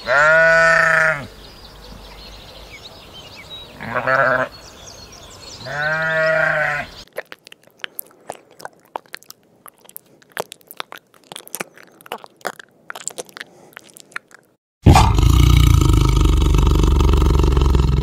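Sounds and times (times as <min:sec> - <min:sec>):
sheep bleat: 0:00.0 - 0:01.3, 0:03.8 - 0:04.6, 0:05.6 - 0:07.0
snail chewing crunching clicks: 0:07.0 - 0:14.6.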